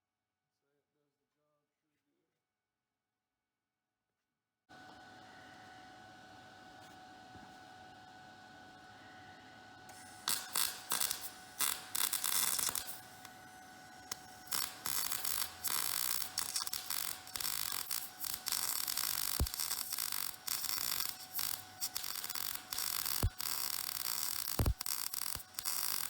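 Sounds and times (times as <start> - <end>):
arc welding crackling: 9.9 - 26.0.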